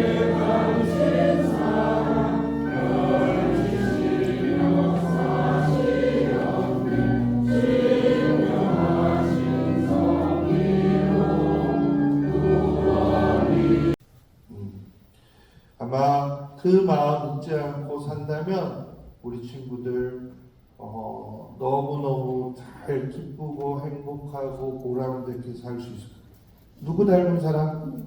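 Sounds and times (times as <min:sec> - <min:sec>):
church choir singing a hymn: 0:00.0 - 0:14.0
held low notes: 0:00.0 - 0:14.0.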